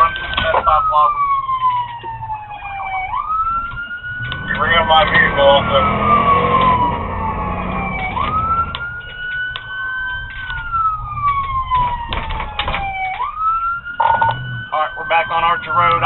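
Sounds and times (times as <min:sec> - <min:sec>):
scattered clicks: 0:00.0 - 0:02.2, 0:03.5 - 0:05.2, 0:07.8 - 0:14.4, 0:15.4 - 0:15.8
engine and road rumble: 0:00.0 - 0:16.0
police siren wailing: 0:00.0 - 0:16.0.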